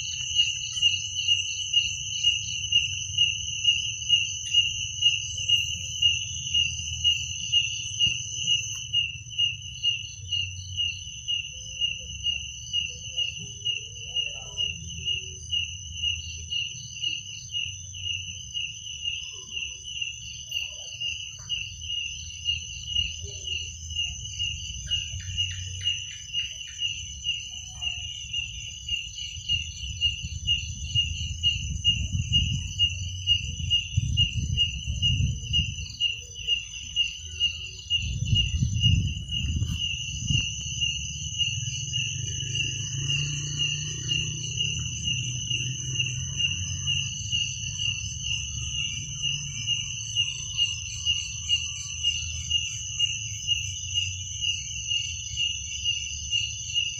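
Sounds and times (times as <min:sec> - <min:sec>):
cricket chirping: 0:00.0 - 0:56.9
insect high-pitched trill: 0:00.0 - 0:56.9
low rumble: 0:37.9 - 0:49.3.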